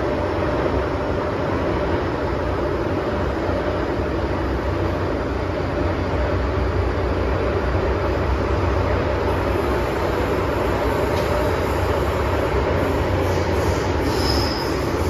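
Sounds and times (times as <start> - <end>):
metro train rumbling on track: 0.0 - 15.0.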